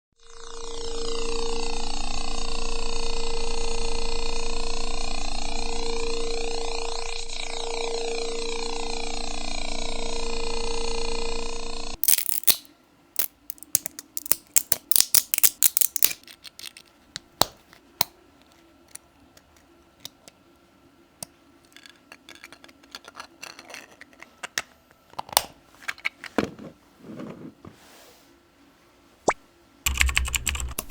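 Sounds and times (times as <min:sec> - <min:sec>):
plastic parts clicking: 0:12.0 - 0:17.8, 0:21.2 - 0:26.6.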